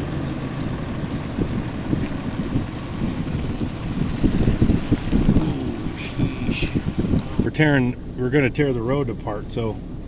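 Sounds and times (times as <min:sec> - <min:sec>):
pickup truck rumbling on dirt road: 0:00.0 - 0:10.0
wind on microphone: 0:00.4 - 0:08.2.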